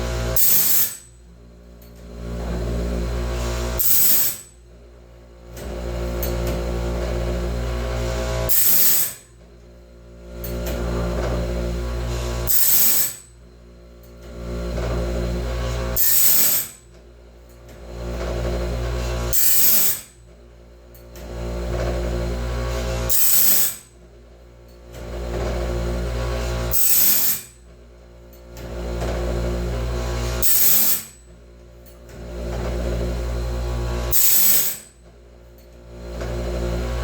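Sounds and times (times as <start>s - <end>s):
grinding wheel on saw tooth: 0.0s - 1.1s, 2.3s - 4.6s, 5.6s - 9.3s, 10.4s - 13.3s, 14.3s - 16.9s, 17.7s - 20.2s, 21.2s - 23.9s, 25.0s - 27.6s, 28.6s - 31.2s, 32.2s - 35.0s, 36.2s - 37.0s
motor hum: 0.0s - 37.0s.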